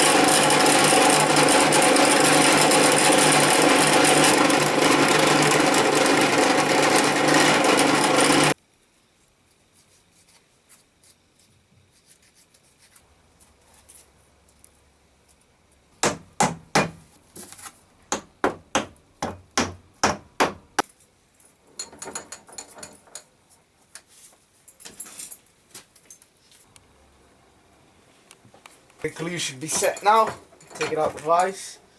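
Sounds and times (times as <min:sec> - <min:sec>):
hammer tapping: 0:18.1 - 0:20.6.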